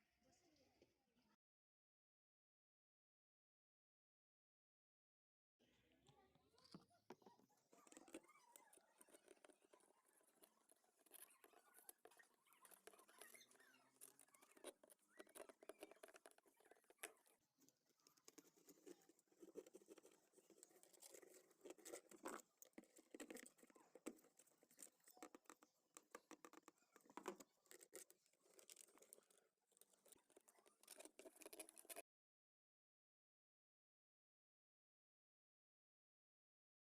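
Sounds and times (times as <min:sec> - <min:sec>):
faint clicking and scratching: 0:05.8 - 0:32.0.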